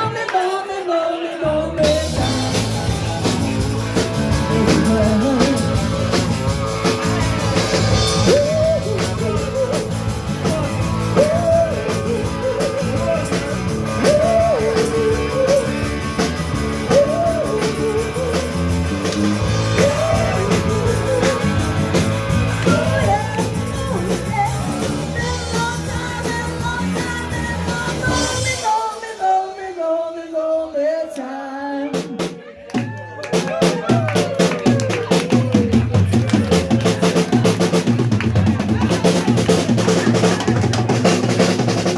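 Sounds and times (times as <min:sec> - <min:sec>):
person singing: 0:00.0 - 0:32.6
live blues-rock band: 0:01.4 - 0:29.4, 0:32.0 - 0:41.9
heavy bass line: 0:01.8 - 0:28.4
drum beat: 0:02.1 - 0:28.5, 0:32.0 - 0:41.9.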